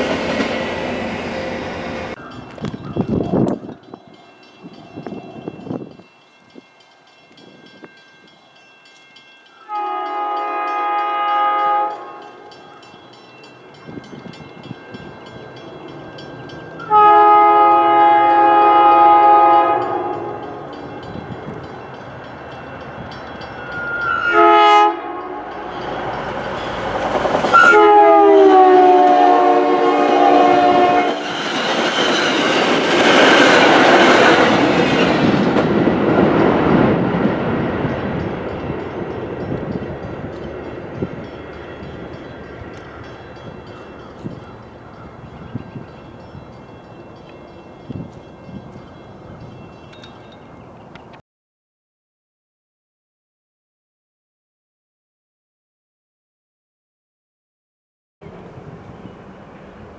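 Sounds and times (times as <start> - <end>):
passing train rumble: 0.0 - 51.2, 58.2 - 59.9
train chime horn: 0.6 - 32.8.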